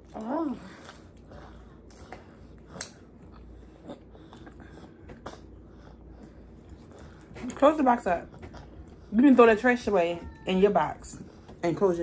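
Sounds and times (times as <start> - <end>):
person chewing and eating: 0.0 - 7.6
soft mouth clicks: 2.7 - 3.0.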